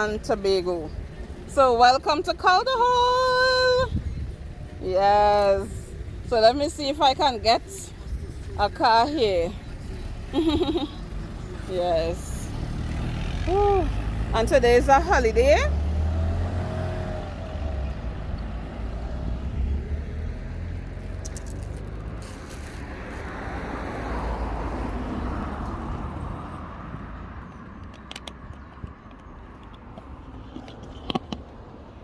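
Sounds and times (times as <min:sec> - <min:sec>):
car passing: 0:09.2 - 0:30.2.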